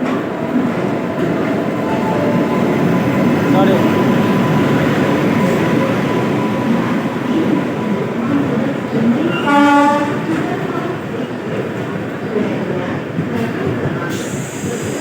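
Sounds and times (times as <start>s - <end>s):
train rumbling on rails: 0.0s - 15.0s
train horn blast: 9.2s - 10.4s.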